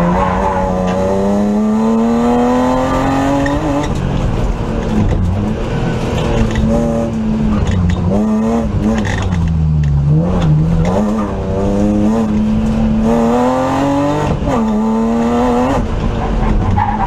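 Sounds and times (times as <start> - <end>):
car engine accelerating: 0.0 - 17.0
sharp clicks and knocks: 3.3 - 12.9.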